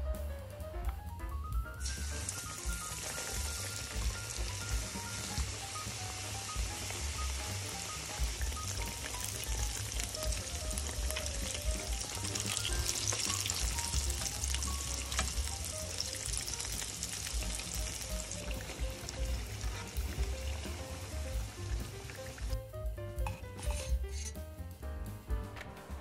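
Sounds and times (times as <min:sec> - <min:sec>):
mushrooms sizzling in oil: 0:01.8 - 0:22.6.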